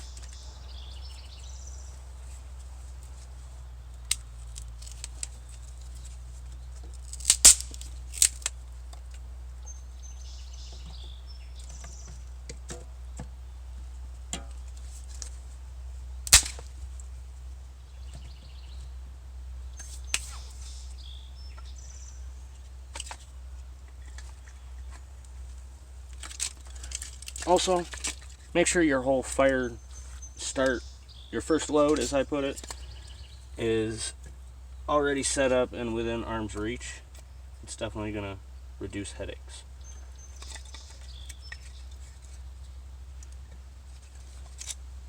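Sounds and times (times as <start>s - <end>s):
faint birds chirping: 0.0s - 45.0s
fire crackling and popping: 6.9s - 9.2s, 16.2s - 17.1s.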